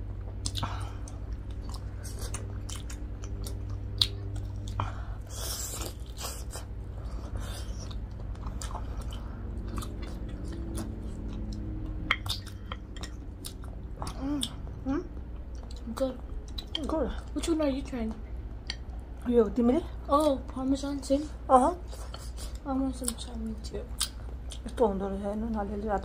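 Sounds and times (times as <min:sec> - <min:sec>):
chewing crispy fried chicken: 0:00.0 - 0:19.2.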